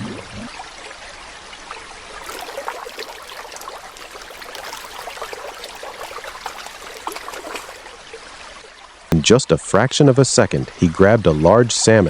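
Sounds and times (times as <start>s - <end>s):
river water rushing: 2.2s - 8.1s
small water splashes: 2.2s - 9.0s.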